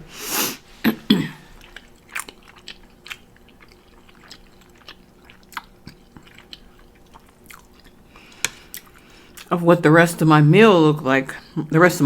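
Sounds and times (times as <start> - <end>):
person chewing food: 1.0 - 9.5.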